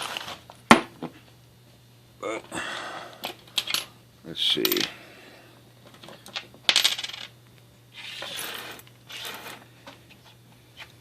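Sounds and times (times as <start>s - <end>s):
coins shuffling: 6.0s - 7.3s, 8.0s - 9.6s
coins clinking and jingling: 6.7s - 7.3s.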